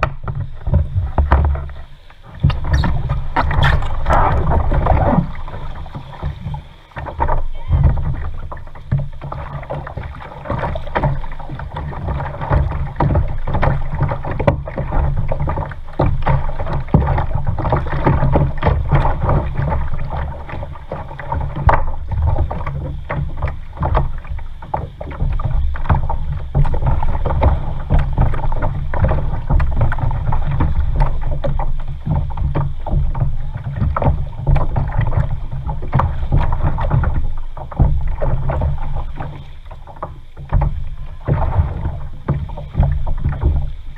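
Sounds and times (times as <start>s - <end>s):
low rumble: 0.0s - 8.8s
paddle splashing: 0.0s - 43.9s
water sloshing against hull: 0.0s - 43.9s.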